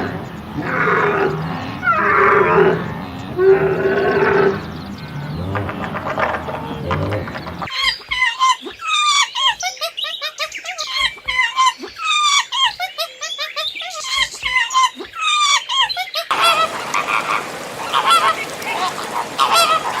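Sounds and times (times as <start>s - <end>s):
bird honking calls: 16.3s - 20.0s.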